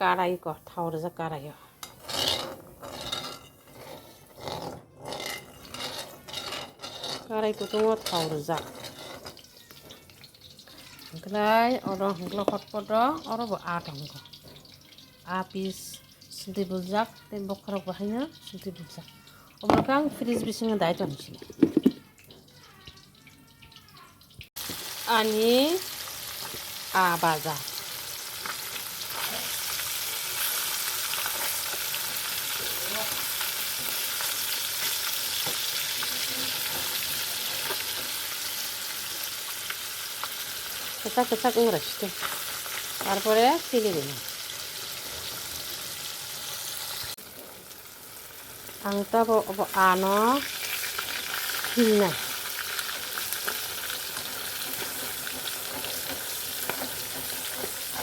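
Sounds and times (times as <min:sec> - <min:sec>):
fish frying in hot oil: 0:01.8 - 0:20.0, 0:22.1 - 0:58.0
oil popping: 0:21.4 - 0:22.3.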